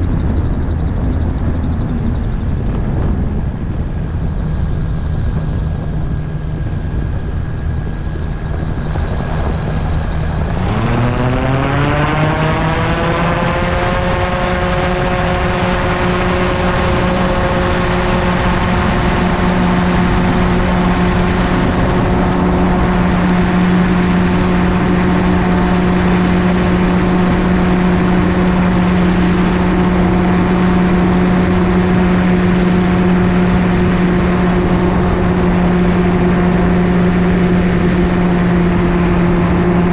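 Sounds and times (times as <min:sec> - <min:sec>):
gyroplane engine and propeller: 0:00.0 - 0:39.9.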